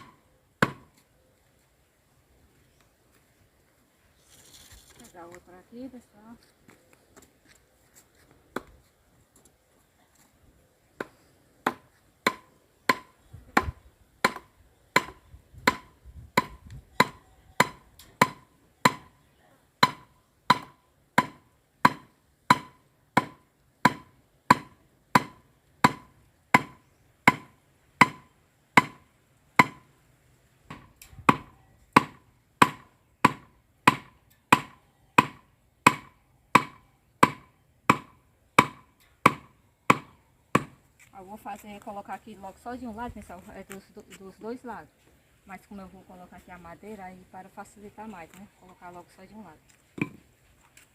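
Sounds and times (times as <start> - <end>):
hammer knocking wooden stake: 0.0 - 1.0, 11.0 - 19.1, 19.8 - 29.0, 29.6 - 29.9, 30.7 - 40.8, 50.0 - 50.3.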